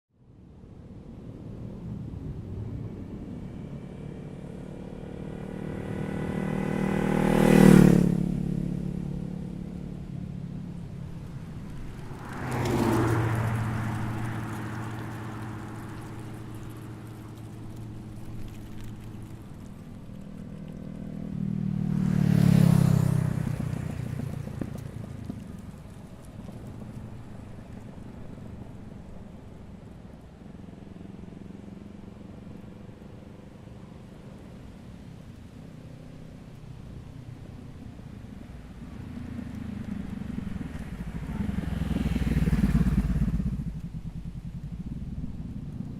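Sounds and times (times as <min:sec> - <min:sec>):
motorcycle engine passing by: 0:03.3 - 0:29.2, 0:35.8 - 0:45.9.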